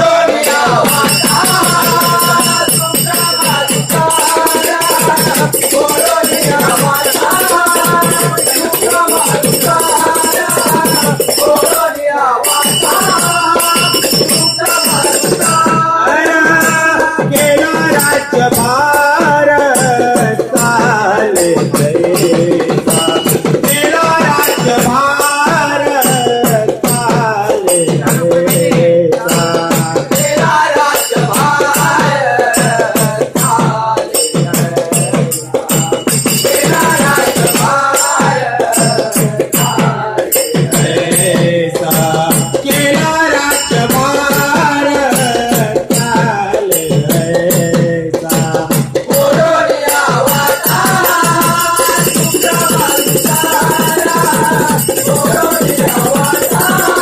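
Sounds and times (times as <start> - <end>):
hand percussion beat: 0.0 - 57.0
small cymbals jingling: 0.2 - 57.0.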